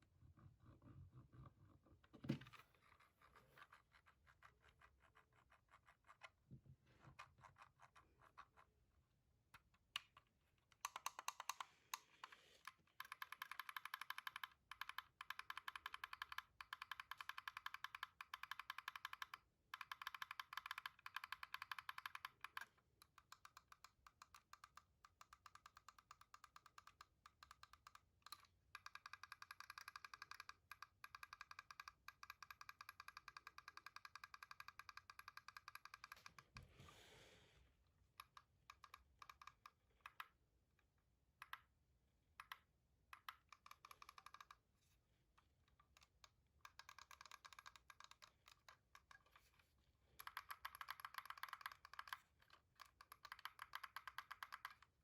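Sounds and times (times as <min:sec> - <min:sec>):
keyboard and mouse clicking: 0:10.0 - 0:36.6, 0:42.4 - 0:44.6, 0:45.8 - 0:49.4, 0:50.2 - 0:55.0.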